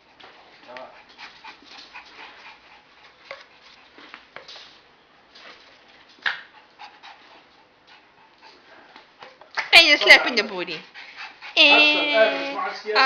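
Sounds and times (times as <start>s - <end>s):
dog scuffles and clicks: 3.2s - 6.5s.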